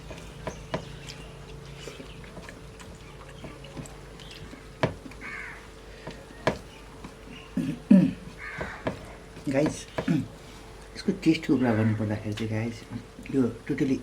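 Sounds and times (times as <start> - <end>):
crow cawing: 5.2 - 6.2, 8.4 - 9.0.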